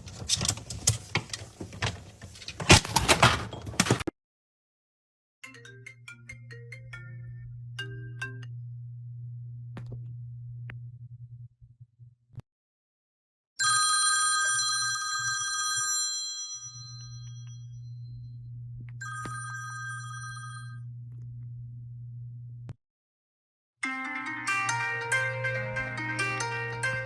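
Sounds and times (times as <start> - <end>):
low steady hum: 6.2 - 12.3, 17.0 - 22.8
bright ringing tone: 13.6 - 18.1, 19.0 - 20.8.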